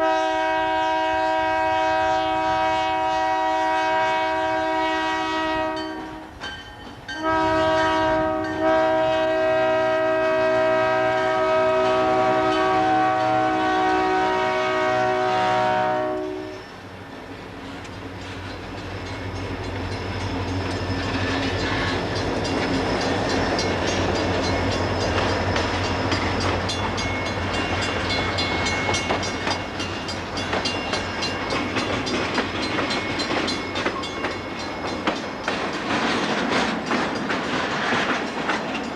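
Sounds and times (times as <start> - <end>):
locomotive air horn: 0.0 - 6.3, 7.2 - 16.7
freight train rumbling past: 0.0 - 38.9
wheels clattering over track: 30.5 - 38.9.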